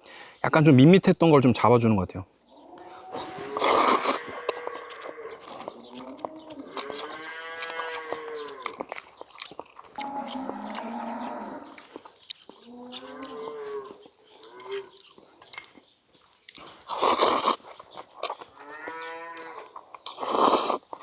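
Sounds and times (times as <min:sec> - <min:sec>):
cattle mooing: 0:02.7 - 0:08.7, 0:10.0 - 0:11.8, 0:12.7 - 0:14.8.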